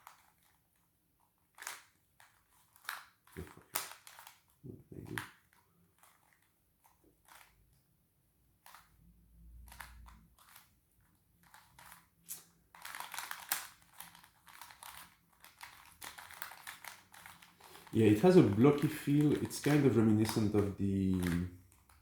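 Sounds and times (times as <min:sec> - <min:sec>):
puzzle layers clicking: 0:11.4 - 0:22.0.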